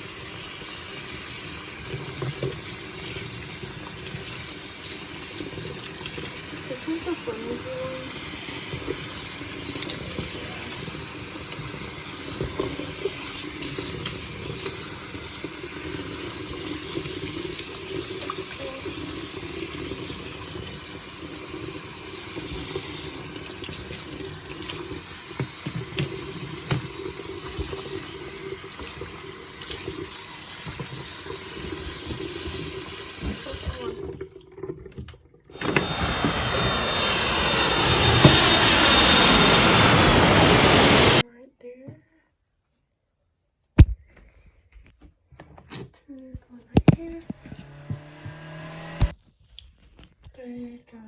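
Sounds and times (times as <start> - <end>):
tap water running into sink: 0.0 - 35.8.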